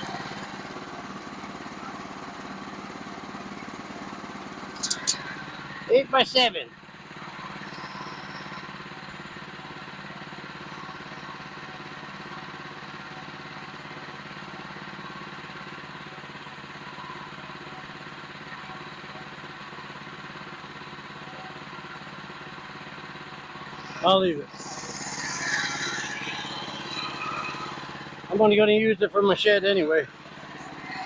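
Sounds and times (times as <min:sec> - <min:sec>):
sawmill engine running: 0:00.0 - 0:31.0.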